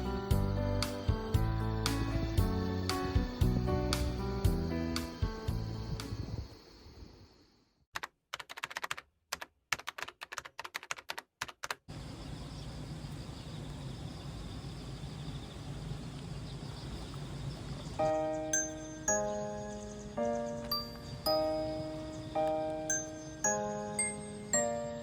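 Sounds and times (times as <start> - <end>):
background hiss: 0.0 - 7.6, 11.9 - 25.0
sharp typing clicks: 8.0 - 11.8.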